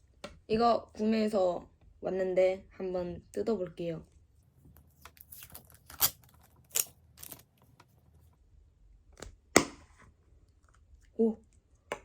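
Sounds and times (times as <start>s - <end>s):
packaging crinkling and tearing: 5.1s - 7.5s.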